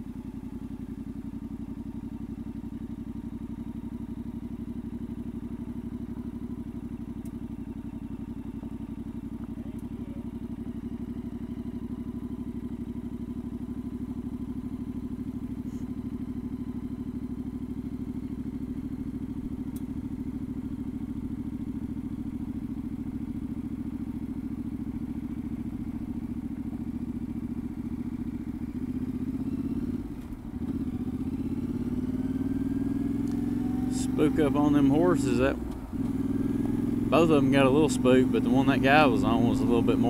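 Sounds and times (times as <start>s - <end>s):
motorcycle engine cruising: 0.0s - 40.0s.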